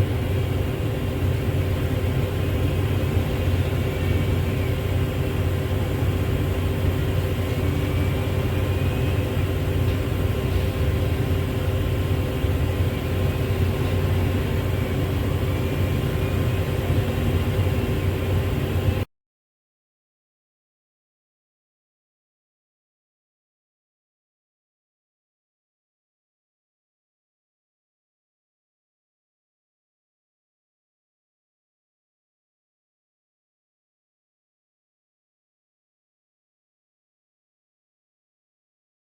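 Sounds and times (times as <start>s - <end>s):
heavy diesel engine droning: 0.0s - 19.1s.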